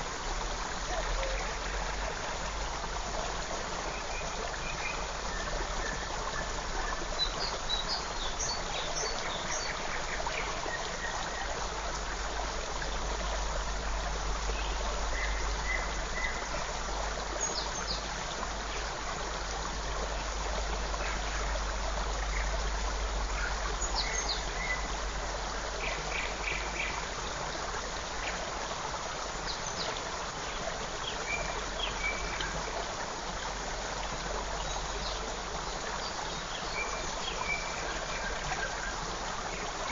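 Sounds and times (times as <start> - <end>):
creek running and splashing: 0.0 - 39.9.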